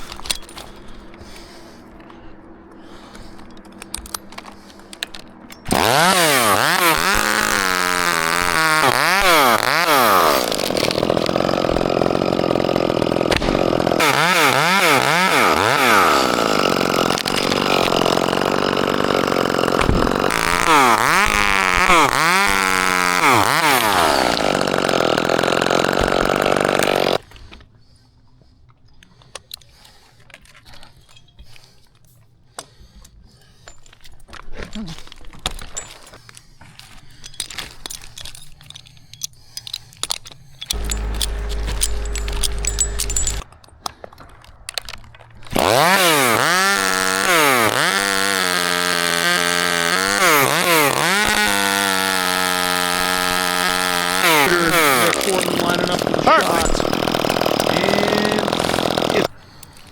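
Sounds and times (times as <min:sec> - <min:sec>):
chainsaw cutting wood: 0:02.9 - 0:27.4, 0:40.6 - 0:44.0, 0:45.4 - 0:59.9.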